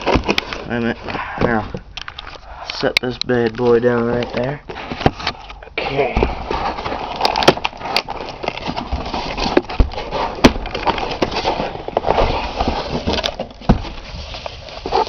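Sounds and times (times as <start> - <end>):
packaging rustling and crackling: 0.0 - 2.6, 6.3 - 15.0.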